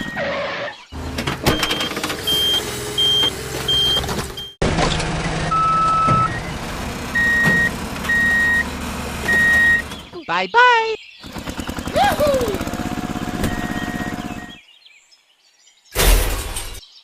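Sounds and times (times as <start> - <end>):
truck reversing alarm beeps: 1.4 - 4.6, 5.5 - 10.1, 13.1 - 14.6
low motor hum: 11.2 - 14.6.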